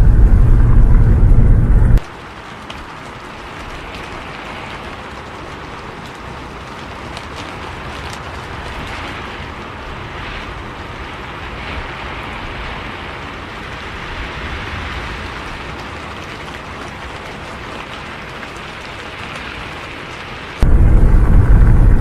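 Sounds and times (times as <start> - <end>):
bus and road rumble: 0.0 - 2.1, 20.0 - 22.0
rain hissing on a bus: 0.0 - 22.0.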